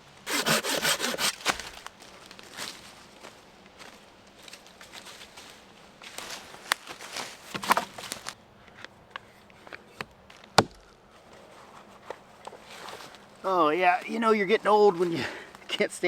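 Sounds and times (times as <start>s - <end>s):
branches being handled: 0.8s - 8.4s
rustling in dry leaves: 1.0s - 8.4s.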